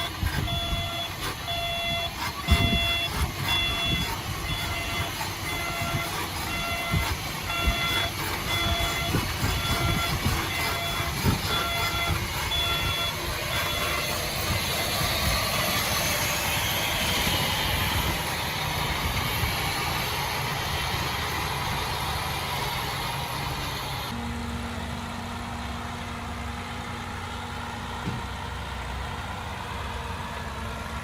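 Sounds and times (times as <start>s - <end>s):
reversing alarm beeping: 0.0s - 20.1s
heavy machine engine and tracks: 0.0s - 31.0s.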